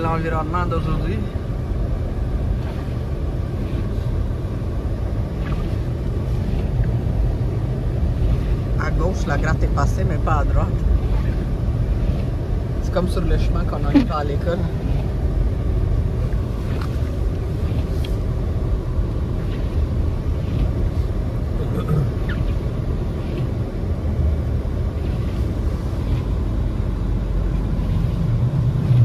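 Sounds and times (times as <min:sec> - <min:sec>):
car engine rumble: 0:00.0 - 0:29.0
tyres on snowy road: 0:00.0 - 0:29.0.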